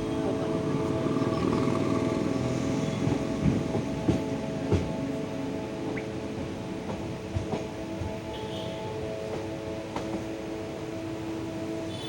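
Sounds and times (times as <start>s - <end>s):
train running hum: 0.0s - 12.0s.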